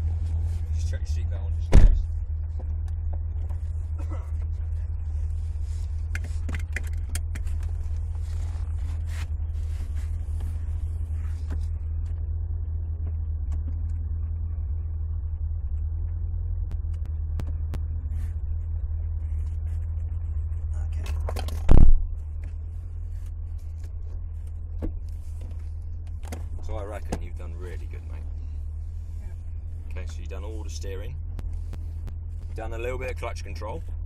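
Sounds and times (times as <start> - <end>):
car engine low rumble: 0.0 - 34.0
loud thump: 1.7 - 2.2, 21.6 - 22.1.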